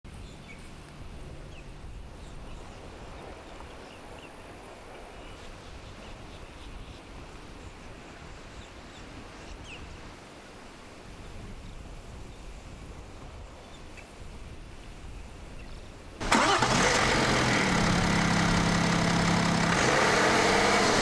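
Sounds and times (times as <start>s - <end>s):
low rumble with hiss: 16.2s - 21.0s.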